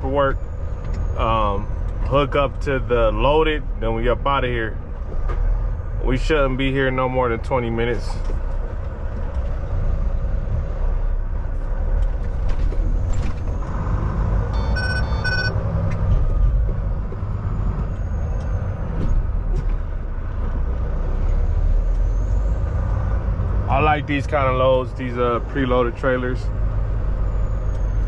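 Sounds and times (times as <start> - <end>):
diesel truck engine running: 0.0 - 28.0
short electronic beeps: 14.5 - 15.6.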